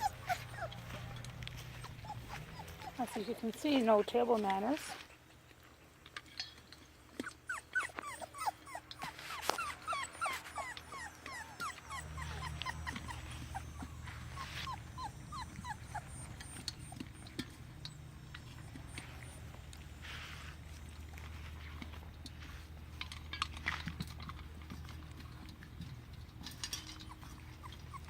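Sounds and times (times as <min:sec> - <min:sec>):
puppies whining and yipping: 0:00.0 - 0:04.8, 0:07.1 - 0:21.5, 0:26.4 - 0:28.0
low steady hum: 0:00.0 - 0:05.6, 0:06.2 - 0:28.0.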